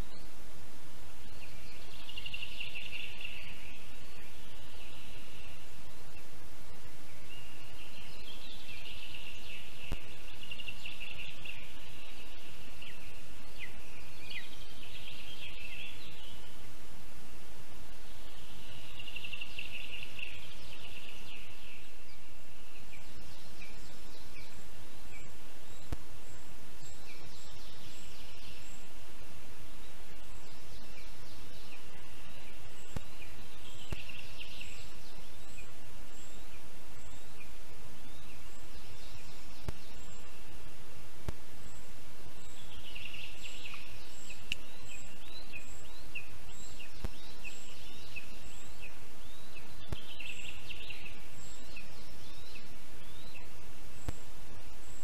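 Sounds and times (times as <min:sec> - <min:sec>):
steady background hiss: 0:00.0 - 0:55.0.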